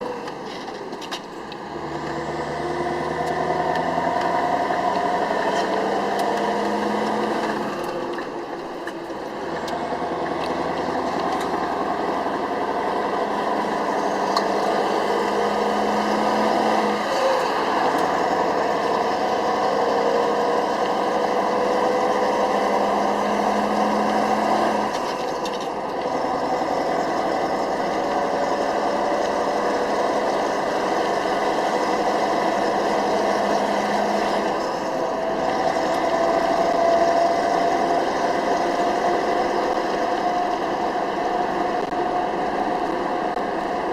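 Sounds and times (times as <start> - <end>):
diesel truck engine under load: 0.0 - 43.9.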